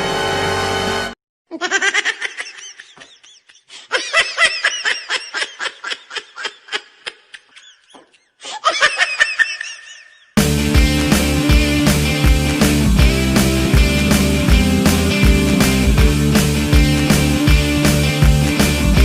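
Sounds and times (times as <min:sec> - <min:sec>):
high-pitched laughter: 0:01.5 - 0:10.4
background music: 0:10.4 - 0:19.0.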